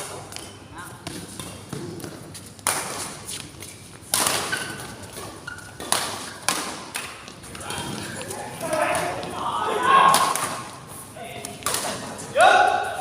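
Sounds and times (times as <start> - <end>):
badminton racket hitting shuttlecock: 0.3 - 7.4.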